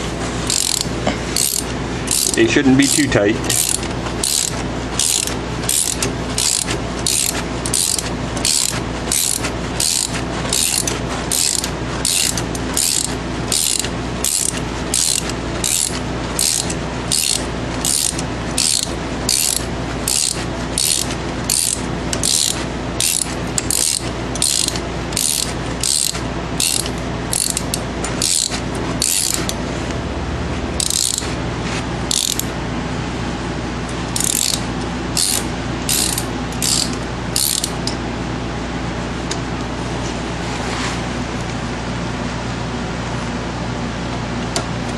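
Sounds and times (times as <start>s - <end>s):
steady low hum: 0.0s - 44.9s
ratchet clicking: 0.5s - 29.6s, 30.8s - 31.3s, 32.1s - 32.5s, 34.2s - 37.8s.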